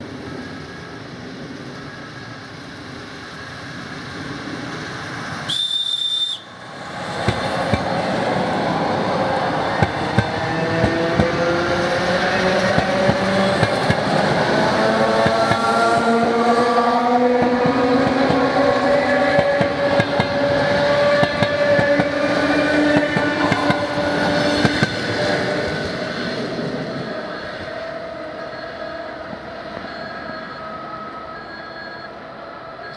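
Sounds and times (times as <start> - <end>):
electric train rumbling: 0.0 - 32.9
high-pitched train whistle: 5.4 - 6.7.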